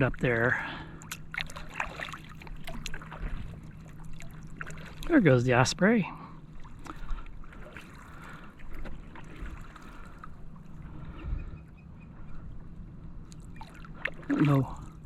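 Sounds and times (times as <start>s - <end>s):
kayak paddle dipping: 0.0s - 15.0s
water lapping against hull: 0.0s - 15.0s.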